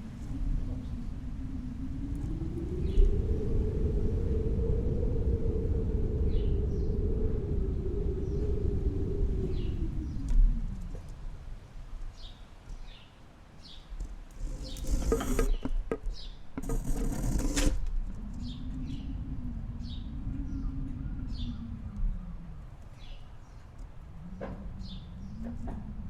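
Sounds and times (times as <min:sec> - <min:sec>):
low hum: 0:00.0 - 0:13.0, 0:14.0 - 0:26.0
small birds chirping: 0:06.1 - 0:26.0.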